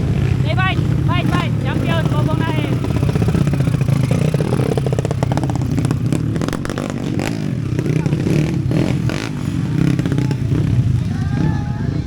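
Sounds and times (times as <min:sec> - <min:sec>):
motorcycle engines running: 0:00.0 - 0:12.0
people talking: 0:00.4 - 0:02.8, 0:07.7 - 0:12.0.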